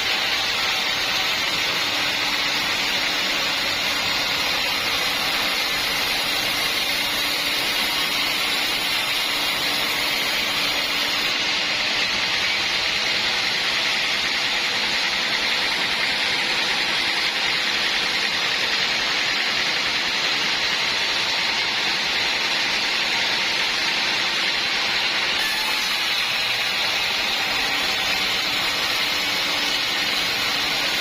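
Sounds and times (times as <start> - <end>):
saw cutting through wood: 0.0 - 31.0.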